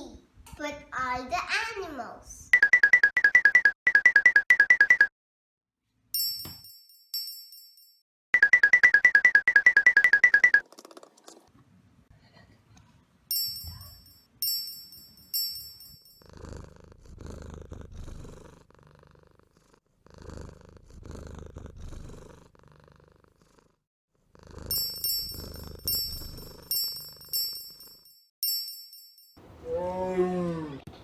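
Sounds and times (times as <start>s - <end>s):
bright chime dings: 6.2s - 10.6s, 13.3s - 16.2s, 24.7s - 29.4s
low rough animal-like sound: 29.5s - 31.0s.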